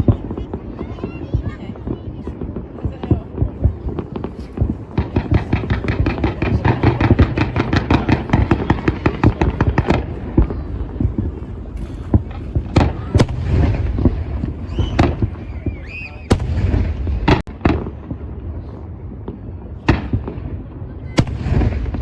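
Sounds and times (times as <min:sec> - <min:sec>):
fireworks crackling bangs: 0:00.0 - 0:22.0
fireworks sharp bangs: 0:00.0 - 0:22.0
low rumble of fireworks: 0:00.0 - 0:22.0
fireworks whistles: 0:11.9 - 0:17.4.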